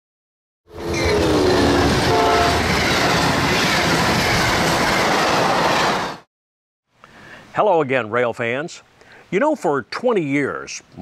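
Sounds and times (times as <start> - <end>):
locomotive horn chord: 0.9 - 2.6.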